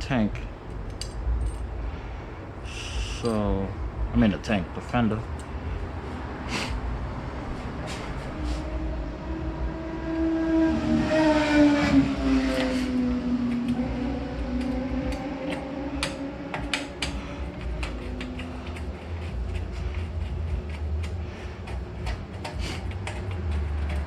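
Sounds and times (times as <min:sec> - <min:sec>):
hardware clicks and knocks: 0:14.6 - 0:24.0.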